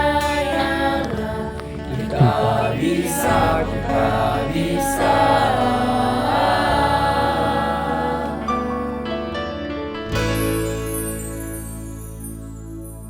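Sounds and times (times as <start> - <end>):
choir singing: 0.0 - 9.4.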